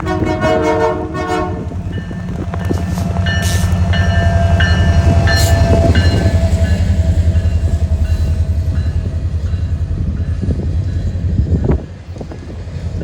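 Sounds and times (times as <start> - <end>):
locomotive horn: 0.0 - 2.0
diesel locomotive rumble: 0.0 - 13.0.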